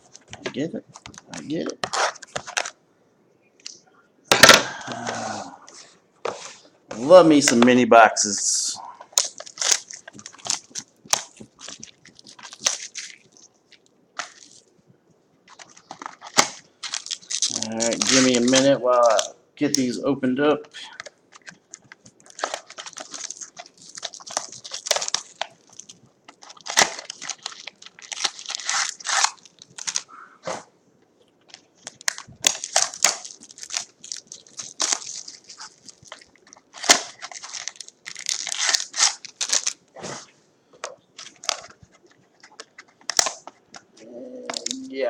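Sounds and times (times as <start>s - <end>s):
packaging crinkling: 0.0s - 2.8s, 9.1s - 14.8s, 15.4s - 19.9s, 21.0s - 30.1s, 31.3s - 44.9s
cardboard boxes torn open: 32.0s - 39.8s.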